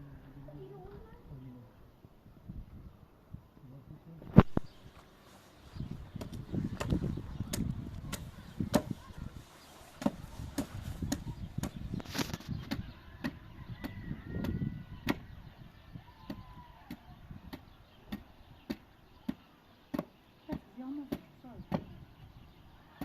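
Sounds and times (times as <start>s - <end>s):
hammering on wood: 6.2s - 9.0s, 10.0s - 11.8s.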